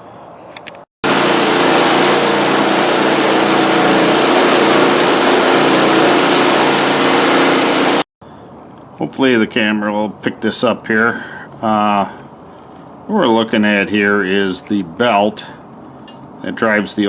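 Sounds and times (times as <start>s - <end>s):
snow blower engine running: 1.0s - 8.1s.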